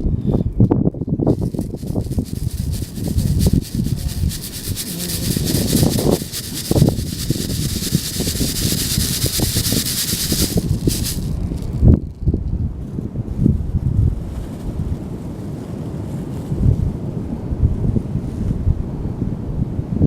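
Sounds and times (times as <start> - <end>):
wind buffeting microphone: 0.0 - 20.0
steady high hiss: 1.3 - 11.9.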